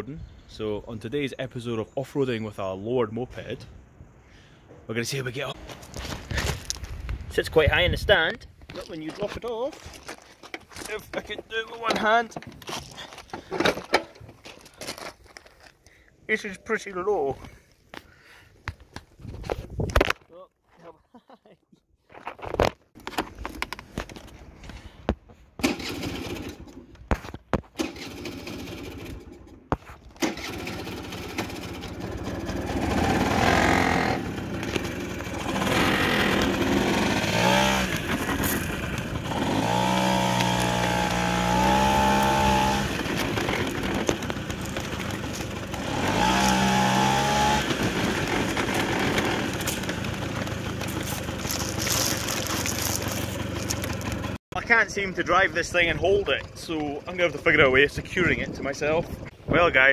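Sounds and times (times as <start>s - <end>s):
handling clicks and knocks: 8.6s - 15.6s, 43.0s - 45.8s, 48.2s - 54.4s
moped engine revving: 25.6s - 26.8s, 27.8s - 29.6s, 30.2s - 54.4s.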